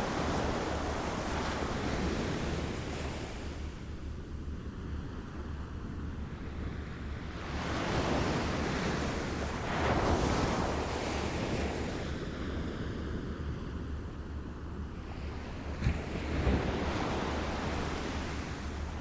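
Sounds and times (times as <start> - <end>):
small waves lapping at shore: 0.0 - 4.1, 6.4 - 13.4.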